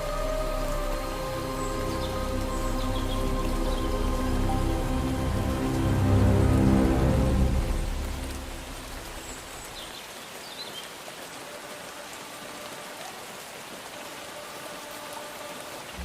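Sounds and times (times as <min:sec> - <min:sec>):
orchestral music: 0:00.0 - 0:09.6
steady rain falling: 0:00.0 - 0:16.0.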